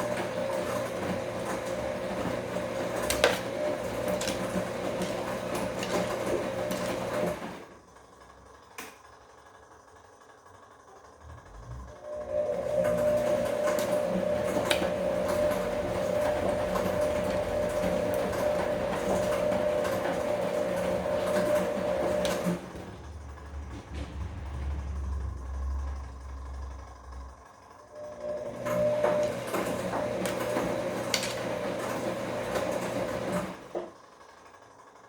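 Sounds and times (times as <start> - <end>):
laundry churning: 0.0 - 7.8, 12.1 - 25.5, 28.2 - 33.8
washing machine motor whine: 0.0 - 35.0
low rumble: 23.0 - 27.4.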